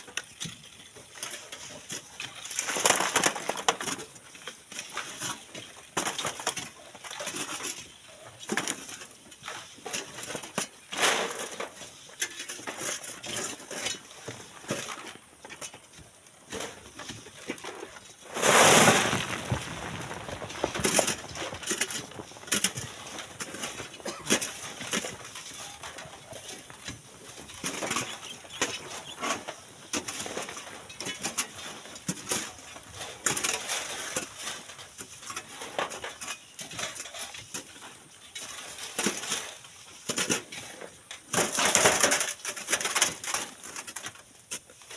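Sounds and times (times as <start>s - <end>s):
shovels scraping sand and gravel: 0.1s - 44.9s
rush of sand and stones: 16.4s - 37.1s.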